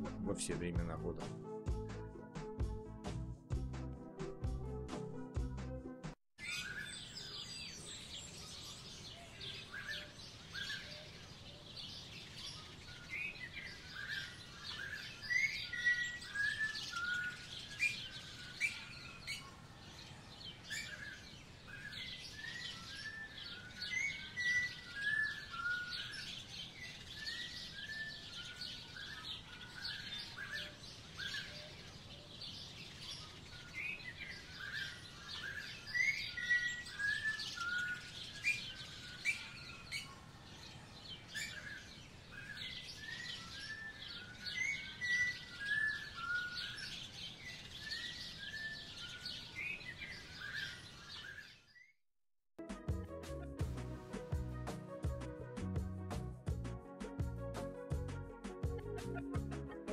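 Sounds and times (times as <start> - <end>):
high bird chirps: 6.4 - 51.9.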